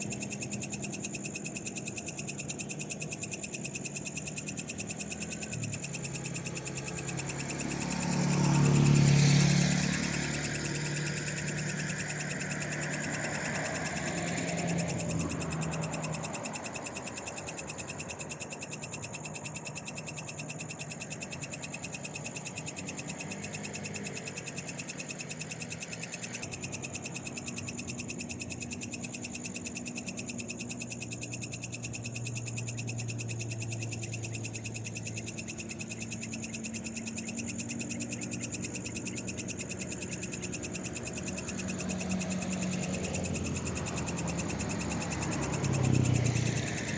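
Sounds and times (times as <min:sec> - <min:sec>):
frogs calling: 0:00.0 - 0:46.9
night insects droning: 0:00.0 - 0:46.9
vehicle passing: 0:05.3 - 0:17.7, 0:31.6 - 0:46.9.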